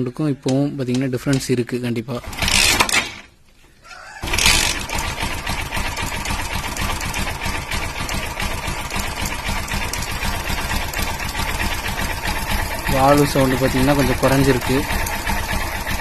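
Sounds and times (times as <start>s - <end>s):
motorcycle engine idling: 4.2s - 16.0s.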